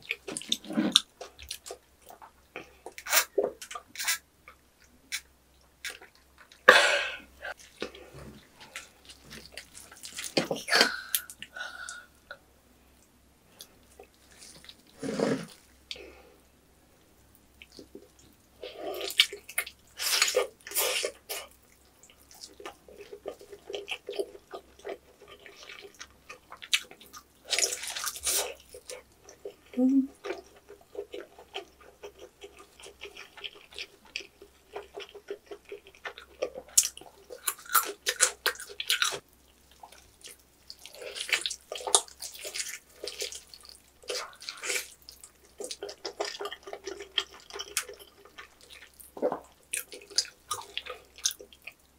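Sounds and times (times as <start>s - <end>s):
wet smacking chewing: 19.0s - 51.9s.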